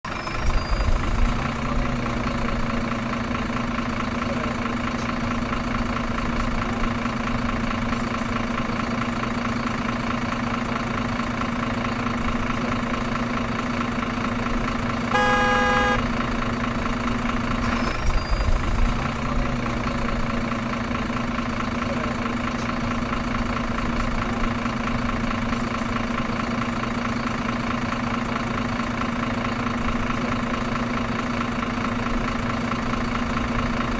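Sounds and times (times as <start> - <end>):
truck engine idling: 0.1 - 33.9
truck horn honk: 15.1 - 16.3.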